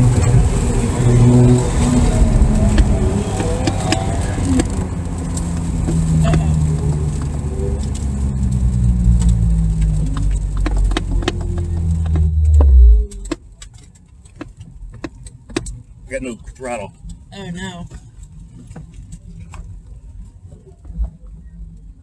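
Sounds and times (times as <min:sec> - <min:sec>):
clicks and rattles: 0:00.0 - 0:15.8
car engine running hard: 0:00.0 - 0:20.1.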